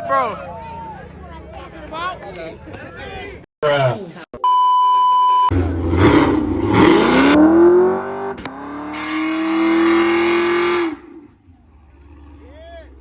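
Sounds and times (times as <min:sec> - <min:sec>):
car engine revving: 0:05.5 - 0:13.0.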